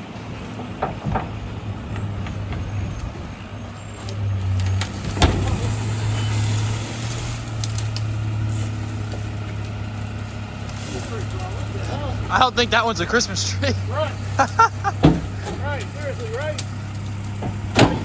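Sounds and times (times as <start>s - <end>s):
garbage truck humming: 0.0s - 18.0s
loud crack: 8.9s - 18.0s.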